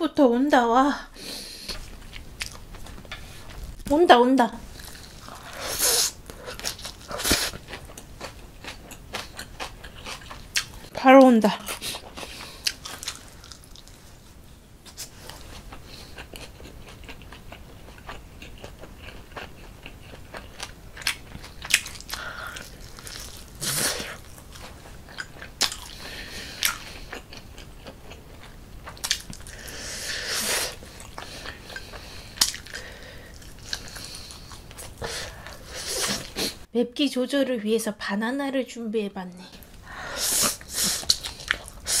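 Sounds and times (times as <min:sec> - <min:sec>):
biting and chewing meat: 0:06.2 - 0:10.9, 0:15.3 - 0:29.7.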